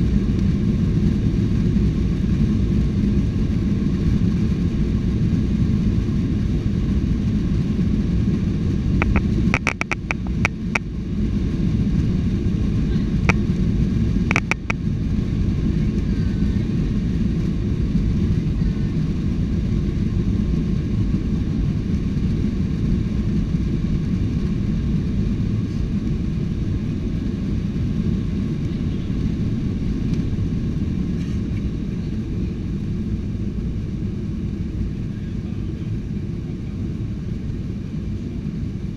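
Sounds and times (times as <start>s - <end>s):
jet engine cabin rumble: 0.0s - 38.9s
sharp clicks: 9.0s - 10.6s, 14.3s - 14.8s.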